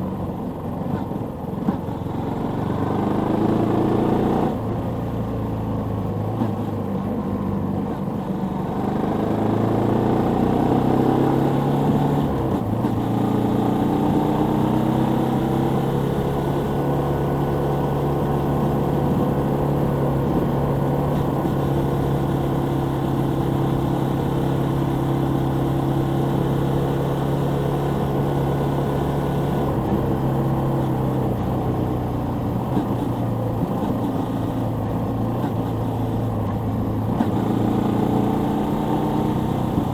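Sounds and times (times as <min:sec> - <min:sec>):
motorcycle engine running: 0:08.2 - 0:39.9.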